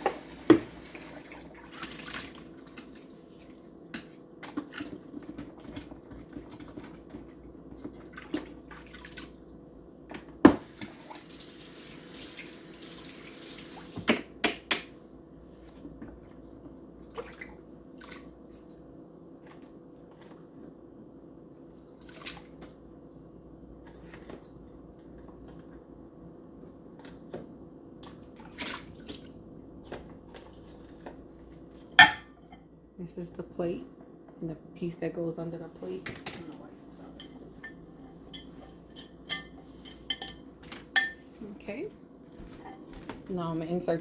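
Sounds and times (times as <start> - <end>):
plate clinking and knocking: 32.0 - 32.4.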